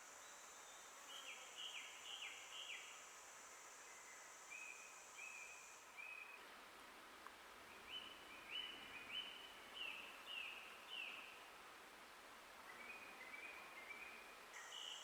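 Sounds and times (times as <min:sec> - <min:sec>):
high insect buzz: 0:00.0 - 0:06.0
background hiss: 0:00.0 - 0:15.0.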